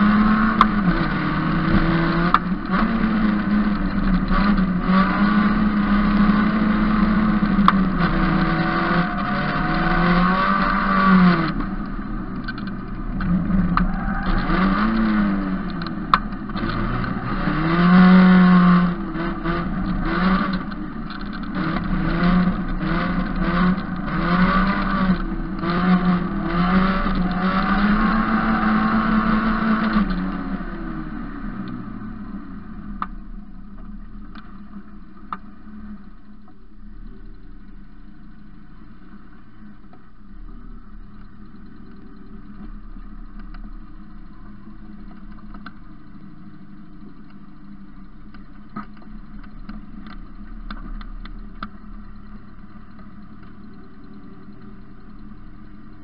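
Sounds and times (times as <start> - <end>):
race car engine revving: 0.0 - 36.0.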